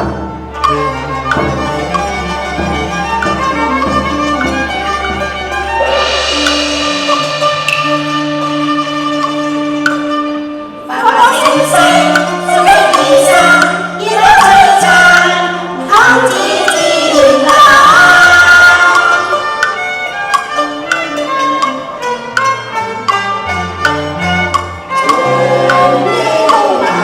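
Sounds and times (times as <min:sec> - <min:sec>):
traditional instrumental ensemble: 0:00.0 - 0:27.0
sharp percussion taps: 0:00.6 - 0:10.4, 0:11.3 - 0:27.0
person singing opera: 0:10.9 - 0:19.5, 0:25.0 - 0:27.0.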